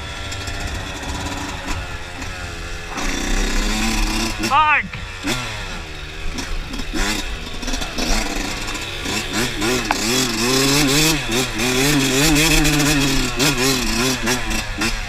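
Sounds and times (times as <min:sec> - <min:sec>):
dirt bike engine revving: 0:00.0 - 0:15.0
sharp knocks and clatters: 0:09.8 - 0:10.2.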